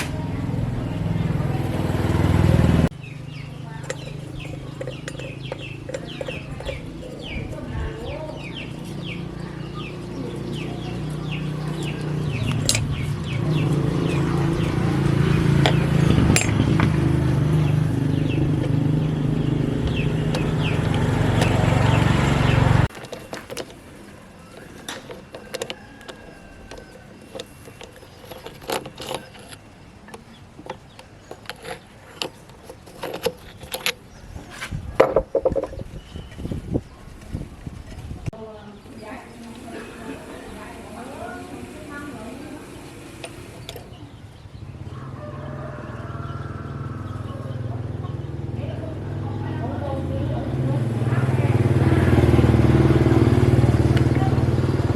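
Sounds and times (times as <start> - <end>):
motor humming: 0.0 - 34.0, 39.0 - 44.6
birds chirping: 0.0 - 54.9.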